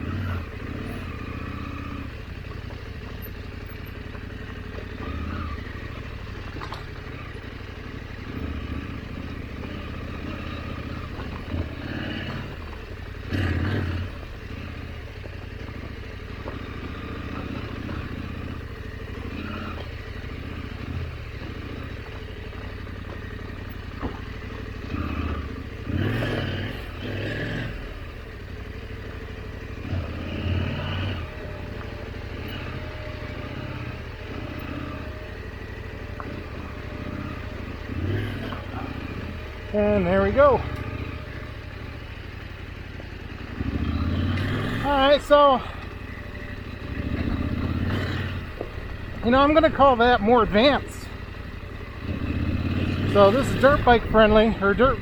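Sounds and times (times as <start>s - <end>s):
motorcycle engine running: 0.0s - 55.0s
motorcycle clattering on rough ground: 0.1s - 55.0s.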